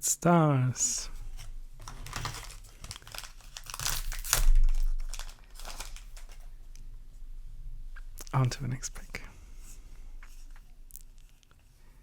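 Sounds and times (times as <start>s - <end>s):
foil wrapper crinkling: 1.3s - 6.6s.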